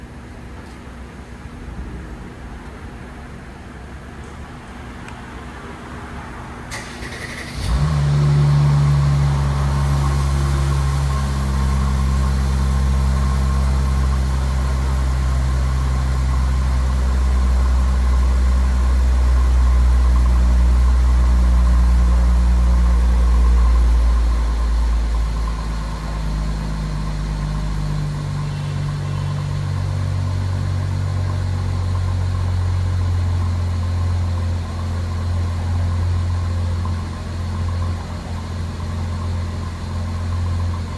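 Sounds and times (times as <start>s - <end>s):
car engine idling: 0.0s - 40.9s
car engine cranking: 6.7s - 14.1s.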